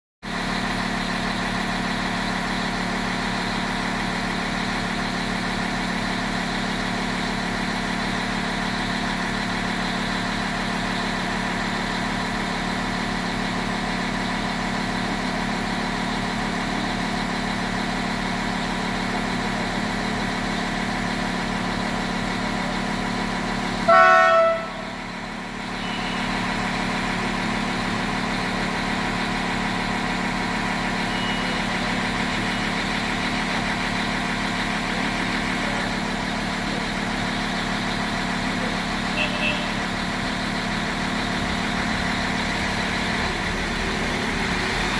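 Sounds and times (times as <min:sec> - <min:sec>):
locomotive engine idling: 0:00.2 - 0:44.9
train horn toot: 0:23.9 - 0:25.0.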